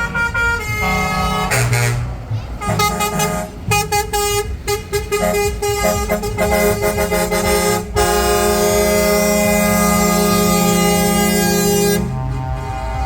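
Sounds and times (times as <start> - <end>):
truck air horns tooting: 0.0 - 13.0.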